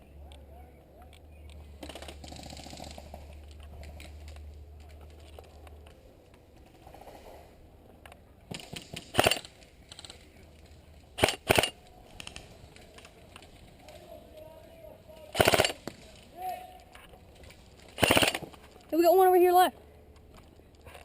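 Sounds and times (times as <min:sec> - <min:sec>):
airsoft guns firing in bursts: 0:08.5 - 0:10.2, 0:11.2 - 0:11.8, 0:15.3 - 0:16.0, 0:17.9 - 0:18.5.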